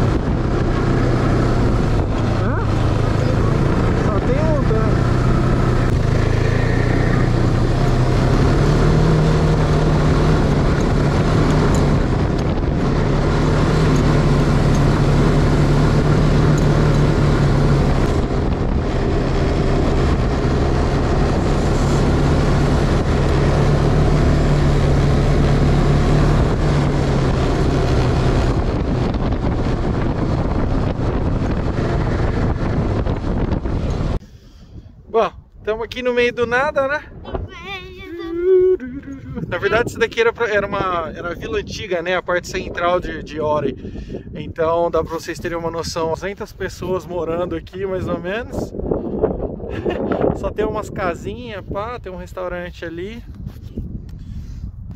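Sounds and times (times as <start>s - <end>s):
snowmobile engine running: 0.0s - 34.2s, 38.0s - 41.6s
wind rushing over microphone: 0.0s - 54.9s.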